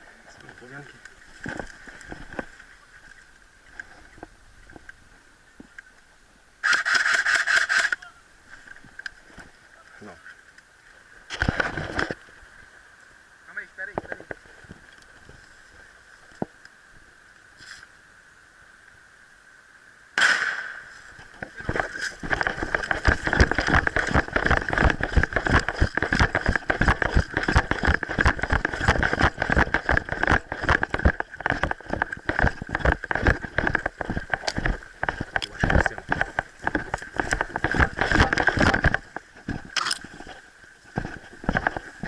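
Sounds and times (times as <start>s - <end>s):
handling and movement noise: 0.0s - 5.0s, 11.3s - 12.4s, 20.8s - 42.0s.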